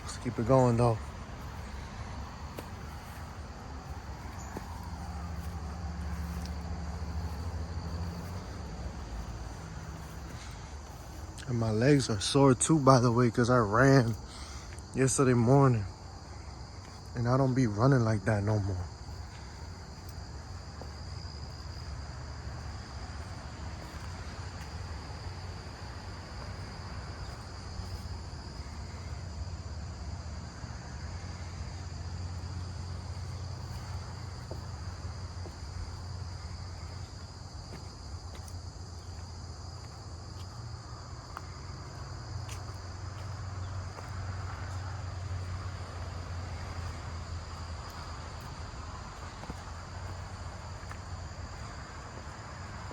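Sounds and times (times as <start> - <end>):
footsteps on a trail: 0.0 - 30.6, 31.3 - 52.9
insects buzzing: 0.0 - 52.9.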